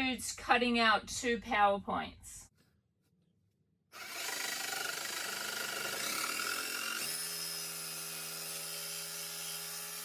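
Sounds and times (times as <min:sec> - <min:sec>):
power tool cutting plywood: 0:04.0 - 0:10.0.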